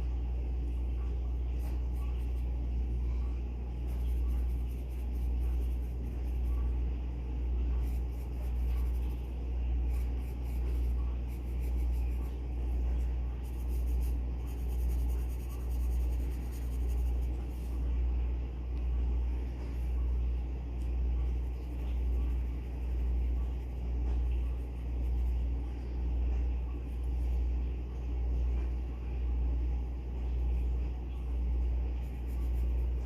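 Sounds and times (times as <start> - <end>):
pencil scratching on paper: 3.8 - 6.7, 7.7 - 17.8, 32.0 - 33.0.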